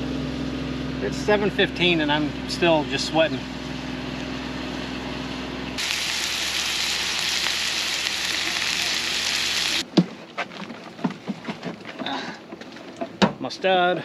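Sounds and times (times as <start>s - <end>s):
onions sizzling in butter: 5.8s - 9.8s.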